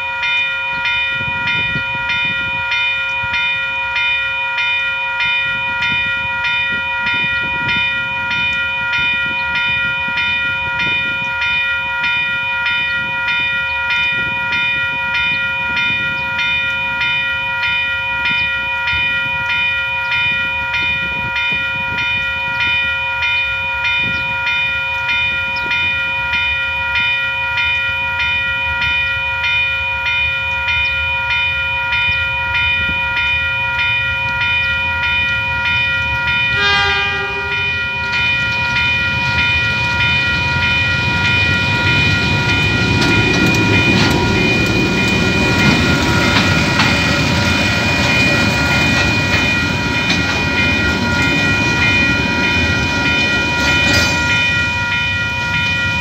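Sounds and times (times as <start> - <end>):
level crossing bell ringing: 0.0 - 56.0
diesel locomotive rumble: 32.2 - 56.0
locomotive horn blast: 36.5 - 38.2.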